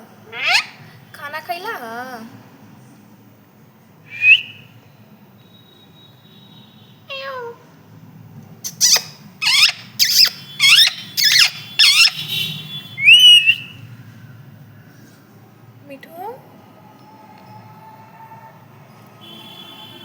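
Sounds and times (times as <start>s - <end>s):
parrot calling: 0.3s - 0.9s, 4.1s - 4.7s, 7.1s - 7.6s, 8.6s - 13.8s.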